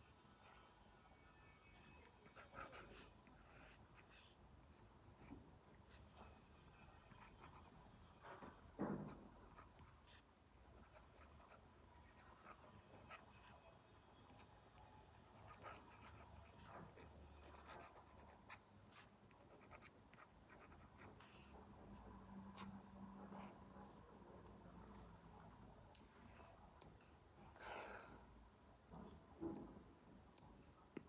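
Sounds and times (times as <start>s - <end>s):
stylus scratching on tablet screen: 1.3s - 4.4s, 5.2s - 14.5s, 15.2s - 21.6s.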